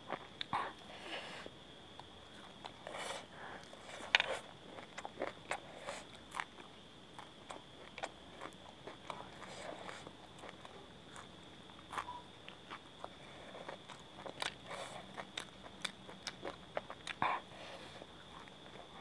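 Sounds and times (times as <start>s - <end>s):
crunchy chewing: 0.0s - 19.0s.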